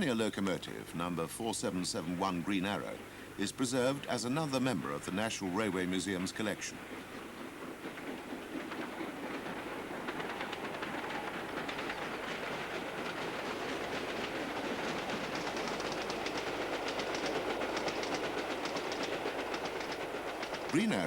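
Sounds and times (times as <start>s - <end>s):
steam locomotive running at speed: 0.0s - 21.0s
fast rhythmic clatter: 7.2s - 21.0s.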